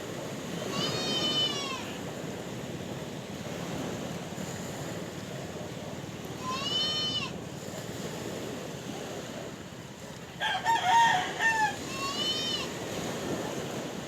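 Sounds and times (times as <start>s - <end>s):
sea surf washing: 0.0s - 14.0s
rooster crowing: 10.4s - 12.7s.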